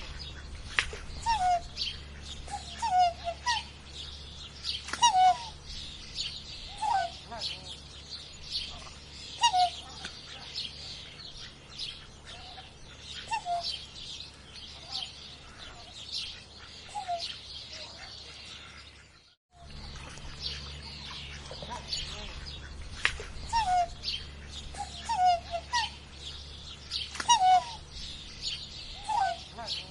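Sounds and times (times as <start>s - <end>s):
birds chirping: 0.0s - 29.9s
short lower bird calls: 23.4s - 29.8s.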